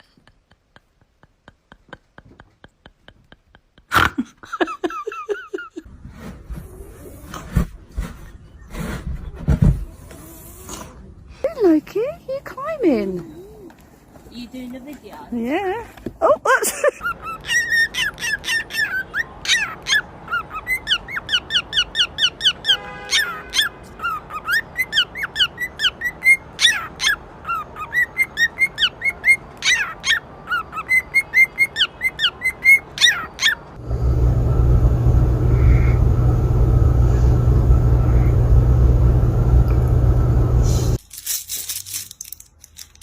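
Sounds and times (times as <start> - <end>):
steady low hum: 33.8 - 41.0.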